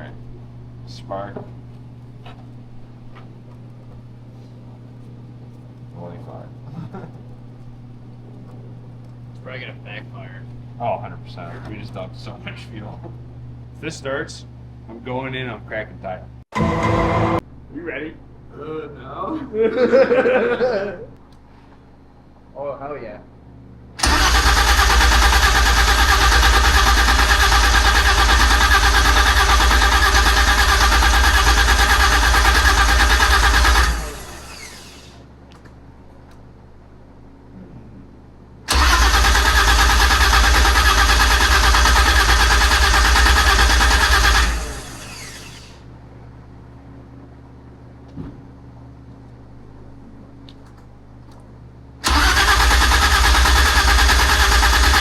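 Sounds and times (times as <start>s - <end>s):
engine cranking on starter: 24.0s - 35.2s, 38.7s - 45.8s, 52.0s - 55.0s.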